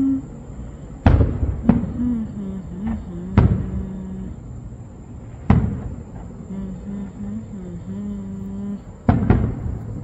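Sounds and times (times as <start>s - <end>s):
firework booms with rumble: 1.0s - 2.0s, 2.9s - 3.8s, 5.2s - 6.3s, 9.1s - 10.0s.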